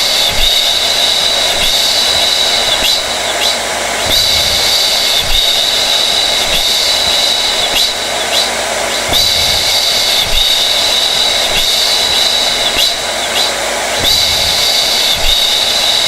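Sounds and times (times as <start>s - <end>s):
blow dryer running: 0.0s - 16.0s.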